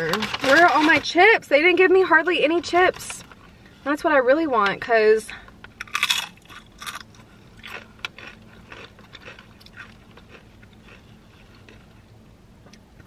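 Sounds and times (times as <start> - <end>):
crunching tortilla chip: 5.8 - 12.0.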